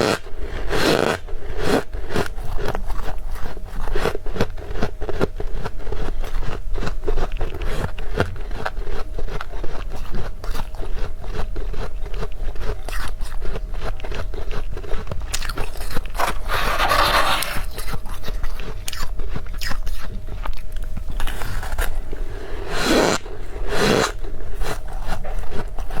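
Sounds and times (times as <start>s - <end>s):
frost being scraped: 15.7s - 18.7s, 21.2s - 26.0s.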